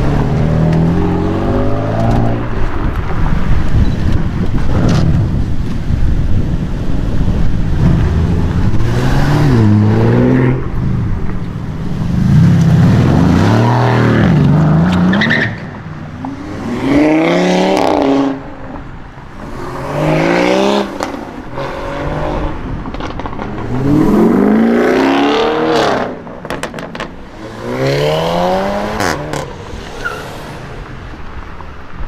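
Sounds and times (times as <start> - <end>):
sports cars accelerating hard: 0.0 - 2.8, 16.2 - 31.0.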